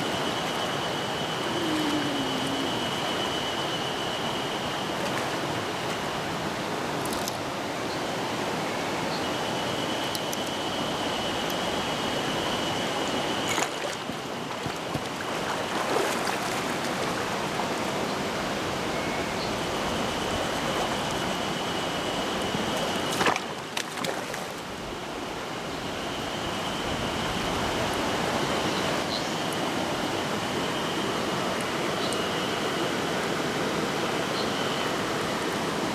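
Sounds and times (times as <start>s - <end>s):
thin high tone: 0.0s - 4.7s
stream water rushing: 0.0s - 35.9s.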